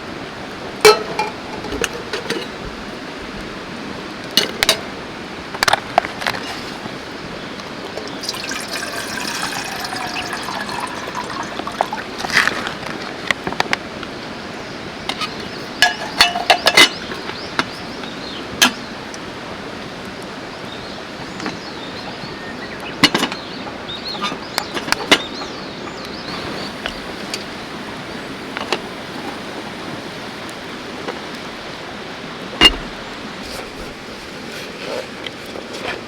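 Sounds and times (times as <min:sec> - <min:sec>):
mountain river rushing: 0:00.0 - 0:16.2, 0:25.7 - 0:35.7.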